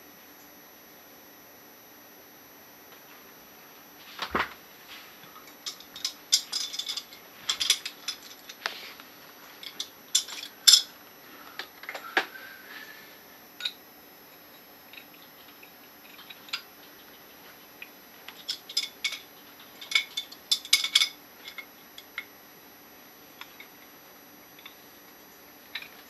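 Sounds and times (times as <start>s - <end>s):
small metal parts clinking: 5.4s - 8.6s, 9.6s - 10.9s, 18.3s - 22.3s.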